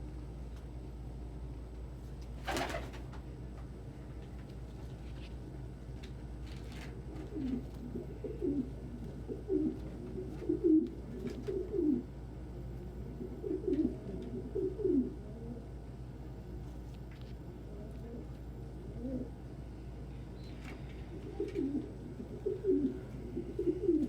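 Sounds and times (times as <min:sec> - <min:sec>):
pigeon cooing: 0:07.2 - 0:12.2, 0:13.0 - 0:15.8, 0:17.7 - 0:19.4, 0:20.4 - 0:24.0.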